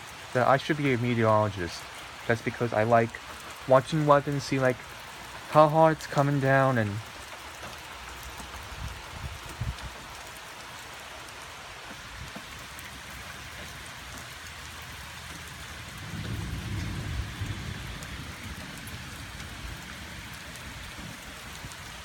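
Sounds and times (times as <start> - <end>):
steady rain falling: 0.0 - 22.0
thunder rumbling: 15.8 - 21.8.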